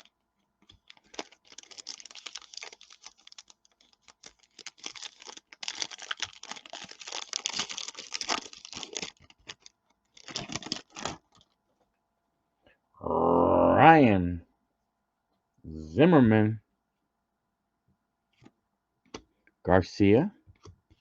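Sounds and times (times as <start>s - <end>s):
cards clicking and wrapper rustling: 0.0s - 11.6s.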